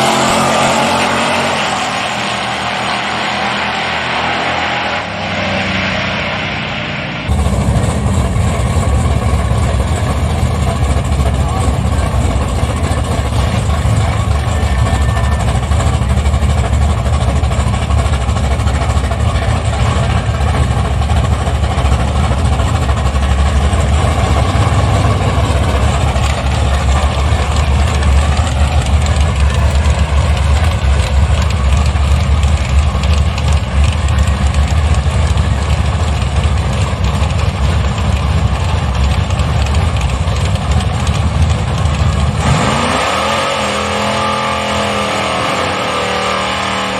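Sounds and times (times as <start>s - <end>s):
engine idling low rumble: 7.2s - 42.8s.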